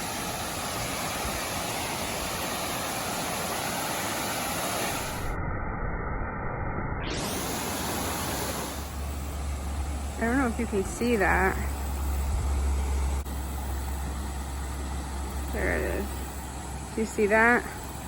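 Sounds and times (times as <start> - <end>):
waterfall rushing: 0.0 - 5.3, 7.1 - 9.2
low rumble: 4.9 - 17.0.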